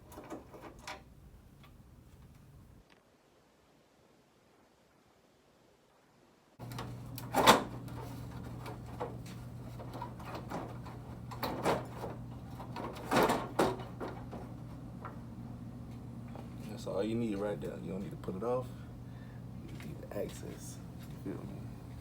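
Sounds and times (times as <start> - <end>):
steady low hum: 6.6 - 22.0.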